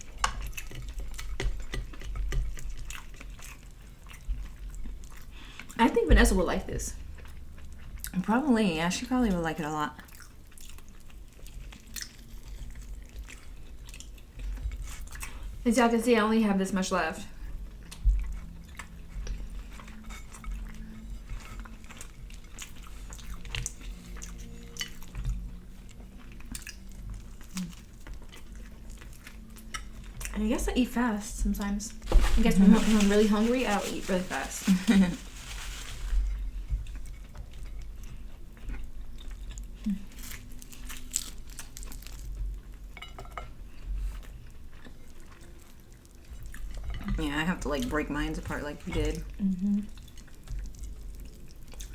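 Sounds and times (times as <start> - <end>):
people chewing: 0.0 - 5.8, 10.0 - 15.6, 17.3 - 51.9.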